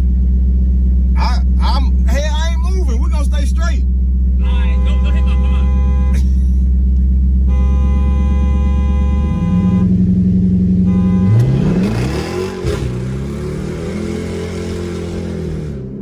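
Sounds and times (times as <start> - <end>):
car engine revving: 0.0 - 16.0
car horn blast: 4.4 - 6.4, 7.4 - 10.1, 10.8 - 13.3.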